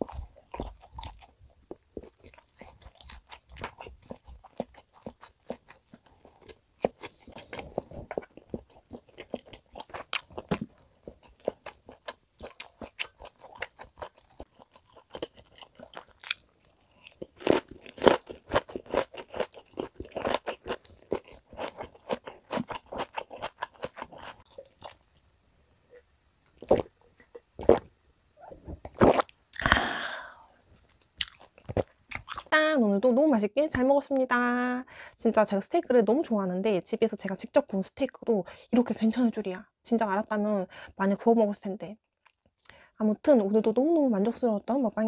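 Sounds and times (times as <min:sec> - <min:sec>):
chewing with wet clicks: 0:00.0 - 0:25.0, 0:30.9 - 0:32.5, 0:42.2 - 0:42.8.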